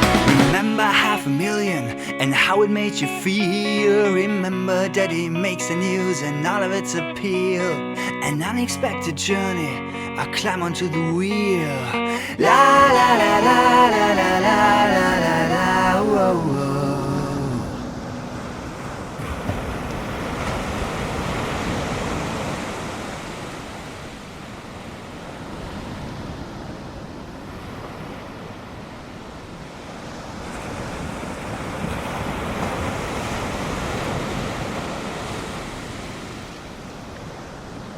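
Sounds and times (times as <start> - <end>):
wind: 11.6 - 37.9
waves breaking on beach: 12.2 - 37.9.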